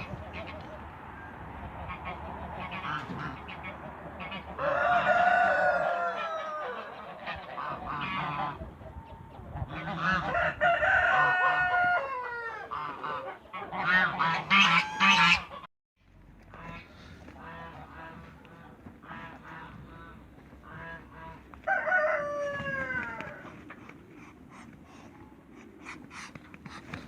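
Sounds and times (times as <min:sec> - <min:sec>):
fowl calling: 0:12.1 - 0:15.7.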